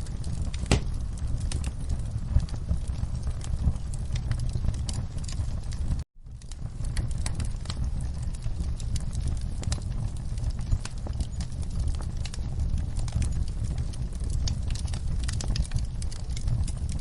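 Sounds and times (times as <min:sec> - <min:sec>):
low rumble of flames: 0:00.0 - 0:17.0
wood fire crackling: 0:00.0 - 0:17.0.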